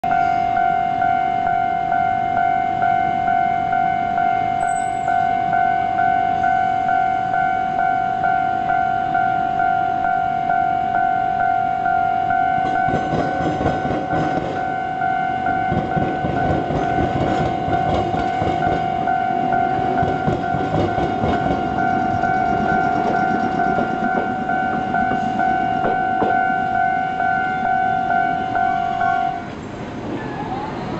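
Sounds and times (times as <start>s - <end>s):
level crossing warning bell: 0.0s - 29.5s
train wheels clacking over rails: 12.6s - 14.8s, 15.5s - 26.8s.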